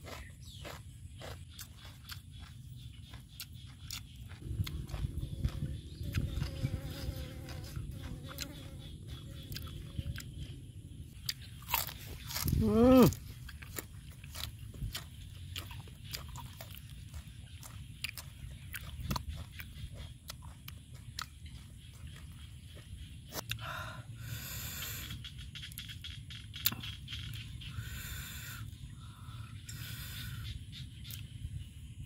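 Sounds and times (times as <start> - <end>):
person chewing crunchy food: 0.0 - 23.7
person humming: 12.5 - 13.2.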